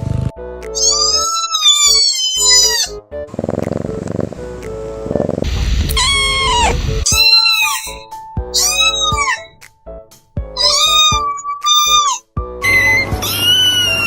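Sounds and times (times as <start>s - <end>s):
background music: 0.0s - 14.0s
kittens meowing: 0.8s - 4.4s, 5.1s - 9.6s, 10.6s - 14.0s.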